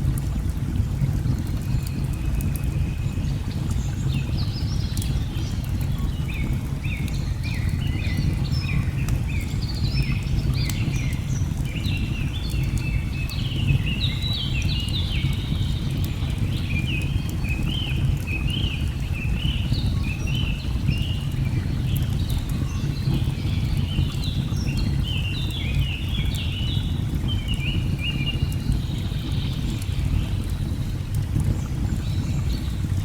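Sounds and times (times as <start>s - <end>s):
rushing water: 0.0s - 33.0s
wood fire crackles: 25.7s - 33.0s.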